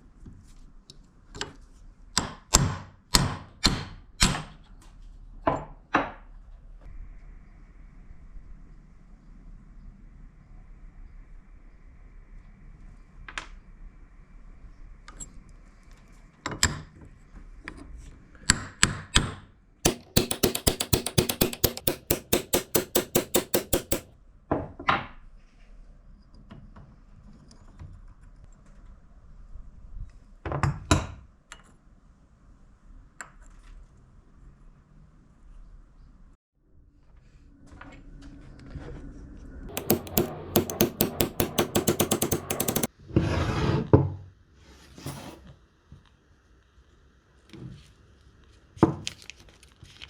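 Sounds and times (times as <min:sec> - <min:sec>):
hammer blows: 0:19.9 - 0:24.1, 0:39.7 - 0:42.9.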